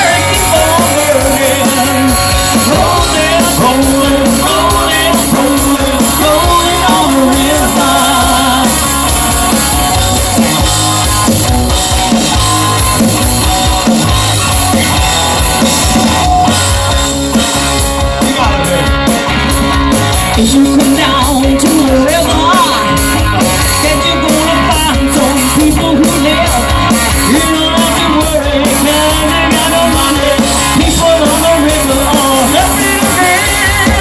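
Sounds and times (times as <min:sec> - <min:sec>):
person singing: 0:00.0 - 0:09.9, 0:20.3 - 0:34.0
drums: 0:00.0 - 0:34.0
electric guitar: 0:00.0 - 0:34.0.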